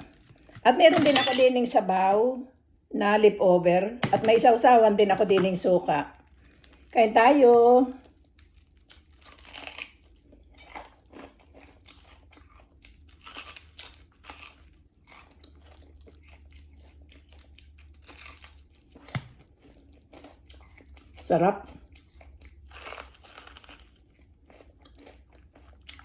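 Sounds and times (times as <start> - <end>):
crunchy chewing of fried fish: 0.0 - 0.7, 6.1 - 7.0, 7.9 - 26.0.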